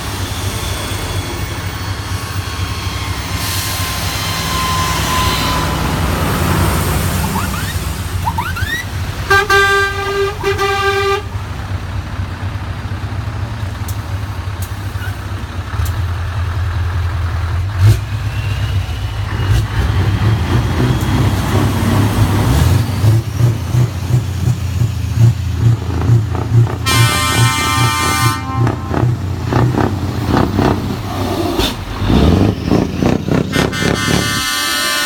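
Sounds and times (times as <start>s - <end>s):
diesel truck engines rumbling: 0.0s - 35.0s
truck air horn: 9.2s - 11.4s, 26.7s - 29.6s, 33.3s - 35.0s.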